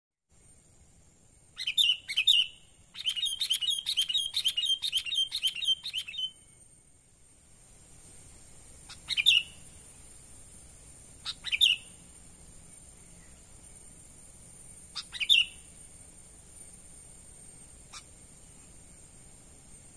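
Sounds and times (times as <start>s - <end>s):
bird calling: 1.6s - 6.5s, 8.8s - 9.7s, 11.2s - 12.0s, 14.9s - 15.8s, 17.8s - 18.8s.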